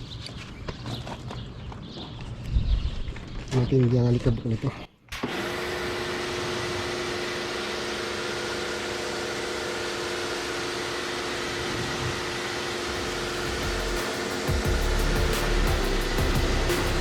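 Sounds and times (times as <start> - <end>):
electric motor running: 5.2 - 17.0.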